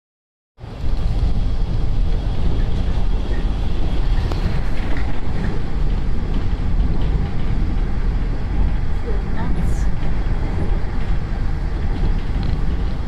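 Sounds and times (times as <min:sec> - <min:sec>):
wind buffeting microphone: 0:00.6 - 0:13.0.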